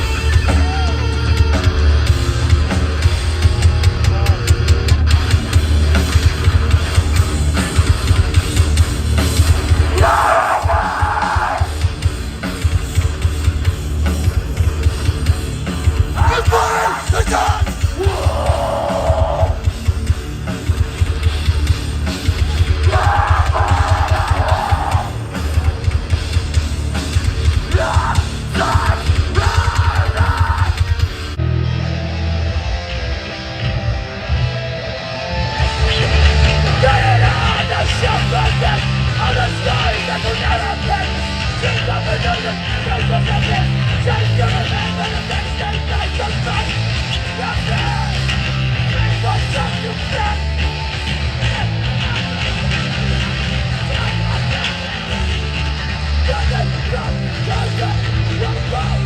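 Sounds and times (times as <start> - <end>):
hardcore band playing live: 0.0 - 59.0
harsh noisy midrange sound: 1.8 - 31.4
shouted vocals: 9.8 - 11.8, 16.2 - 19.7, 22.5 - 25.8, 27.6 - 31.0, 35.9 - 52.5.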